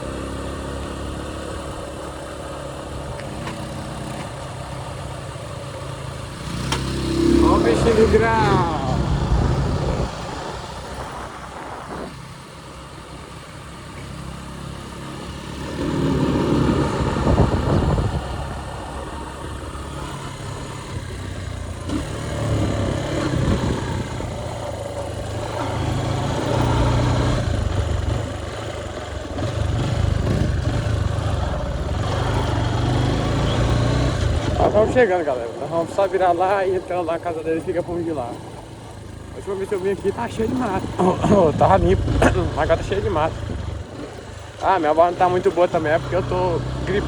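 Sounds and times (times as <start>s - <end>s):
motorcycle engine: 0.0s - 47.0s
wind noise: 8.0s - 12.9s, 15.7s - 21.4s, 22.4s - 24.6s, 40.6s - 44.3s.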